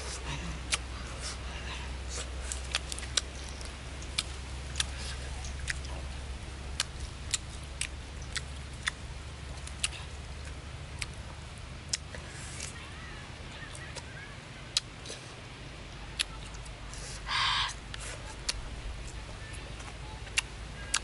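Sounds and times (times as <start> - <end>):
low steady hum: 0.0 - 21.0
mouth smacks chewing: 2.1 - 6.1, 6.7 - 11.2, 19.8 - 21.0.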